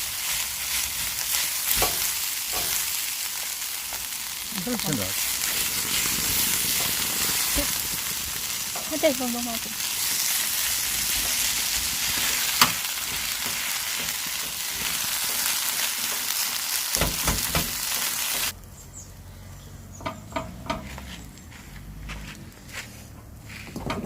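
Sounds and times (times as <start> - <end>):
food sizzling in hot oil: 0.0 - 18.6.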